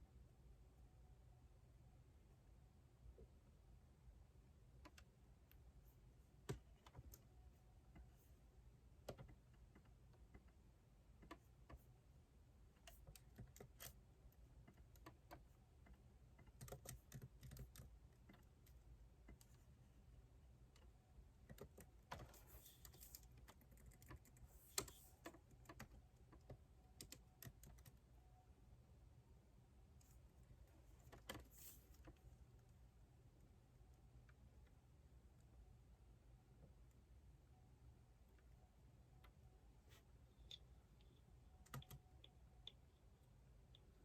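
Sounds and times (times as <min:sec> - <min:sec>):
typing on computer keyboard: 0:12.8 - 0:19.6, 0:20.8 - 0:28.1, 0:40.5 - 0:42.8.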